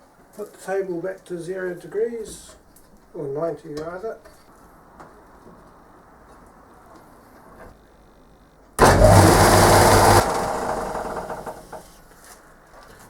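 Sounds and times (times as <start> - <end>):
power tool motor humming: 8.8 - 11.9.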